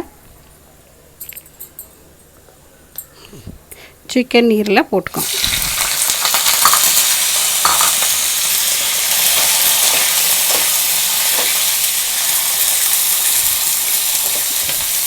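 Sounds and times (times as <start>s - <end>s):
liver sizzling in hot oil: 5.2s - 15.0s
spatula stirring in pan: 8.7s - 12.8s.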